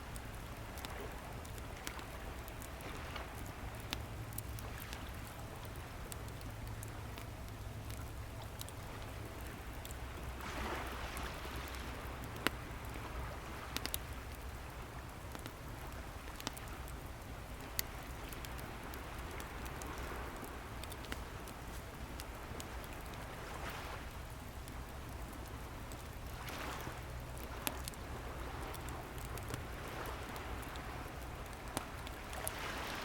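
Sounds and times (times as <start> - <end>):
wood fire crackling: 0.0 - 33.0
sea waves: 10.2 - 14.8, 17.7 - 24.2, 25.9 - 33.0.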